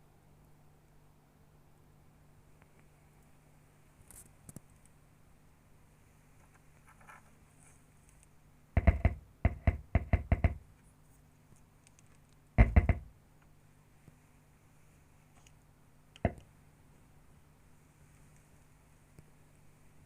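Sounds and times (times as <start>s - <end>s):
faint low hum: 0.0s - 20.0s
sharp knocks and taps: 8.8s - 10.6s, 12.6s - 13.1s, 16.2s - 16.5s.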